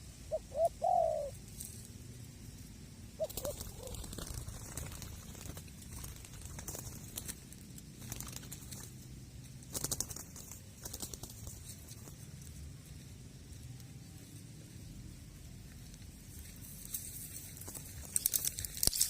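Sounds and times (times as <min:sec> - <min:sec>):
rapid fluttering clicks: 0:03.2 - 0:12.6, 0:16.9 - 0:19.0.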